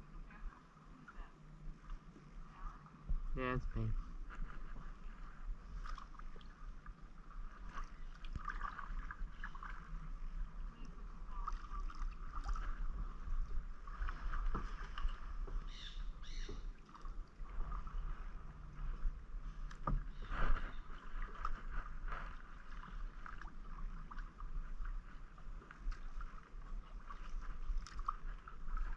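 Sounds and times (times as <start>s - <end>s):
paddle splashing in water: 1.8s - 28.9s.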